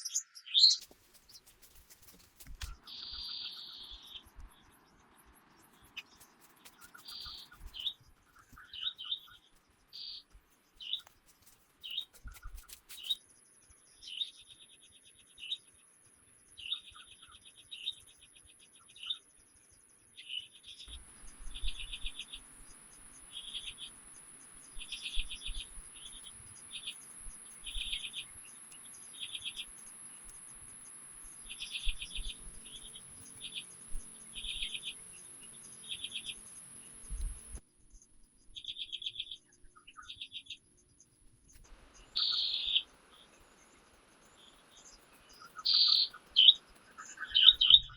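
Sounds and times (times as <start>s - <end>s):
rapidly pulsed chirps: 5.6s - 9.5s, 21.1s - 37.6s, 42.0s - 47.9s
soft steady hiss: 20.9s - 38.1s
high-pitched insect whine: 21.0s - 37.6s, 42.0s - 47.9s.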